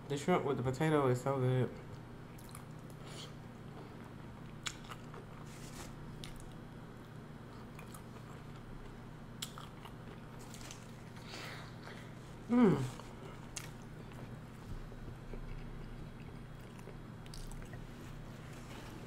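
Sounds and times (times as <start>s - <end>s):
steady low hum: 0.0s - 19.0s
chewing and wet mouth smacks: 2.3s - 3.3s, 4.4s - 5.4s, 6.2s - 8.7s, 9.4s - 11.2s, 13.4s - 14.3s, 15.2s - 17.8s.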